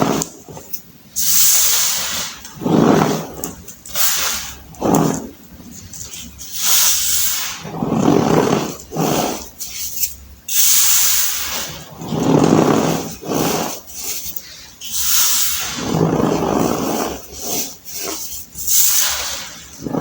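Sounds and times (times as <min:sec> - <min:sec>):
baking soda crunching: 0:00.0 - 0:20.0
powdery hiss: 0:00.0 - 0:20.0.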